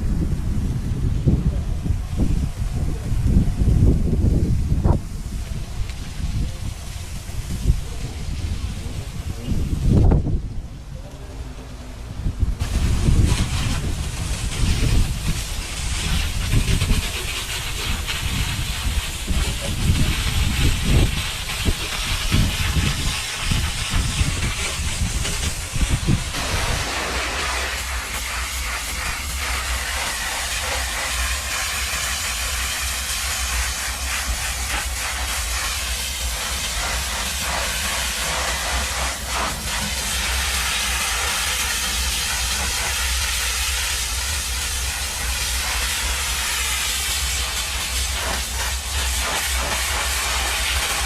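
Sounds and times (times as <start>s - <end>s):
low rumble: 0.0s - 39.0s
car wash equipment hissing: 0.0s - 51.0s.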